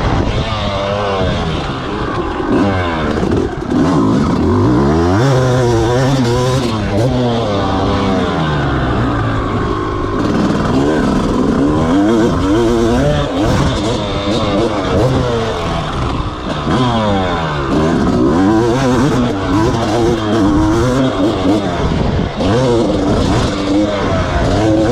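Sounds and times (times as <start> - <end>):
motocross bike engine revving: 0.0 - 24.9.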